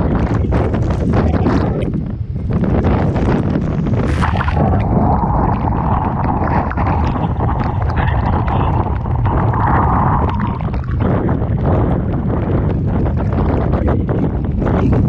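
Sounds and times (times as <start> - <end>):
heavy low rumble: 0.0 - 15.0
wind buffeting microphone: 0.0 - 15.0
rough sea crashing: 3.1 - 15.0.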